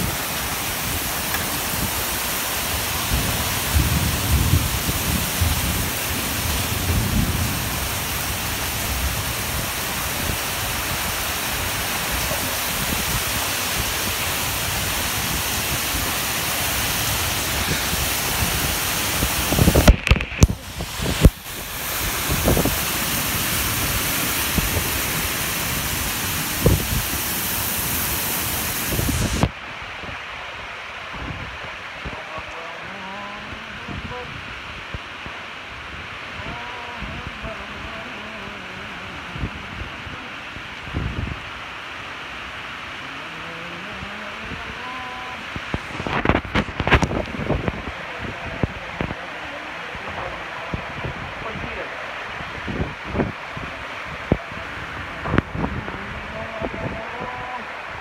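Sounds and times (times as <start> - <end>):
wind gusts buffeting microphone: 0.0 - 30.2, 39.3 - 41.6, 45.5 - 58.0
heavy rain pouring: 0.0 - 58.0.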